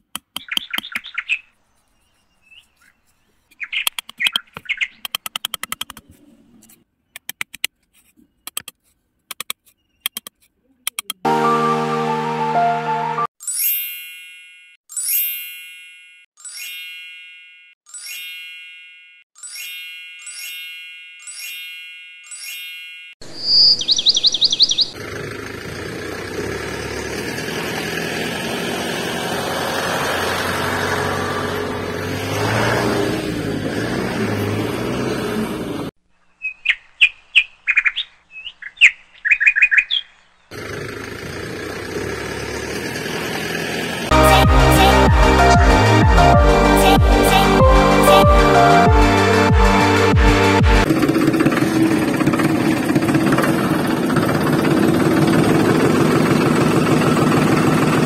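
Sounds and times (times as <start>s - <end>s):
bird chirps: 0.3s - 6.2s, 9.6s - 10.4s, 23.2s - 25.0s, 36.1s - 40.5s
chime-like tone: 11.3s - 23.2s.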